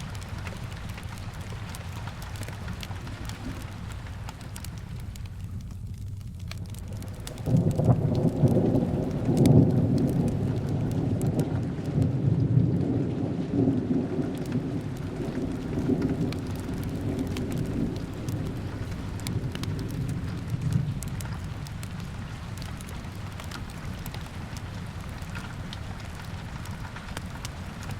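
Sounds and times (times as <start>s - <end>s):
faint crackles: 0.0s - 27.9s
rumble of thunder: 0.0s - 27.9s
steady rain: 0.0s - 27.9s.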